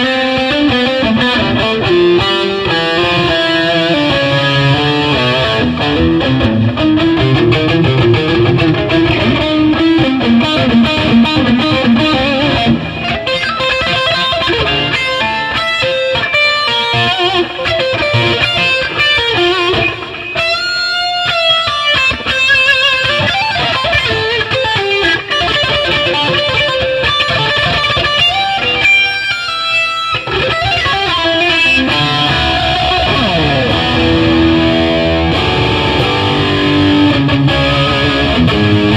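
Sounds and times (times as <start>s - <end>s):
electric guitar melodic lines: 0.0s - 38.9s
guitar note sliding down: 1.2s - 15.4s, 30.4s - 38.9s.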